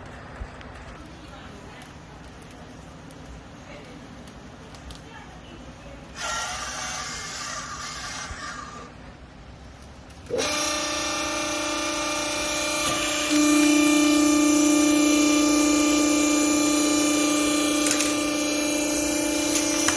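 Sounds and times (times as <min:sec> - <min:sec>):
hydraulic pump motor humming: 0:10.2 - 0:19.9.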